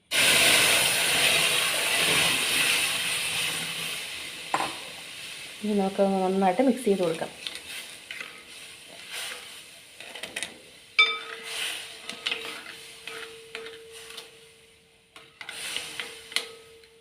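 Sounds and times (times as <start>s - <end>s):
ladle scraping metal pot: 7.4s - 14.3s
ladle knocking pot ringing: 11.0s - 11.5s.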